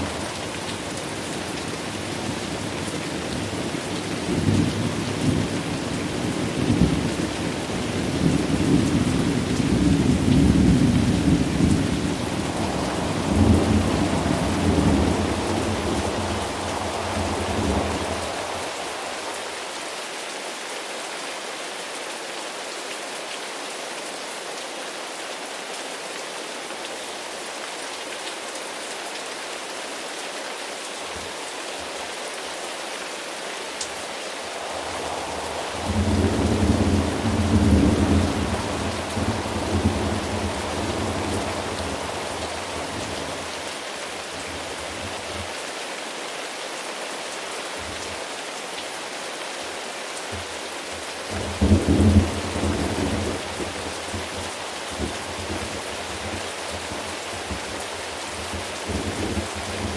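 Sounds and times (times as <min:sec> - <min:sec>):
steady rain: 0:00.0 - 0:59.9
thunder rumbling: 0:06.5 - 0:19.5, 0:34.4 - 0:43.6, 0:51.3 - 0:54.4.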